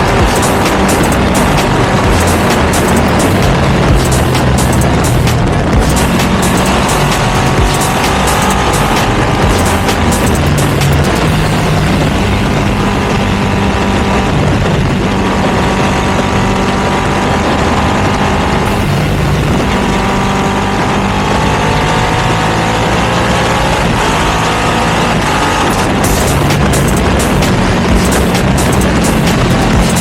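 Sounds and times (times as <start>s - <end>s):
twin-cylinder motorcycle engine: 0.0s - 30.0s.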